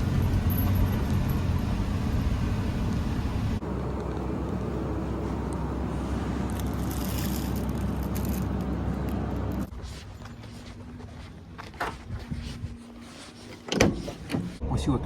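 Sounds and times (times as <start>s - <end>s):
van engine running: 0.0s - 9.7s.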